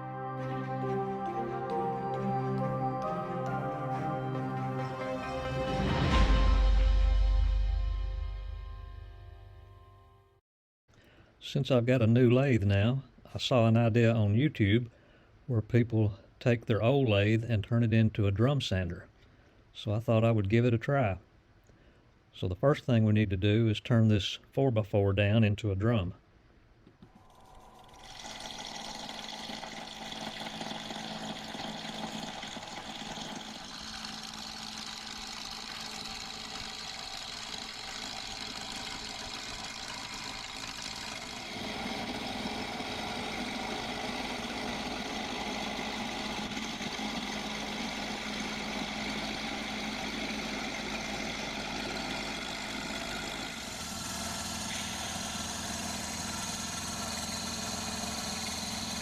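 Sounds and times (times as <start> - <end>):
wood lathe motor hum: 0.0 - 6.8, 27.0 - 59.0
tool cutting spinning wood: 27.0 - 59.0.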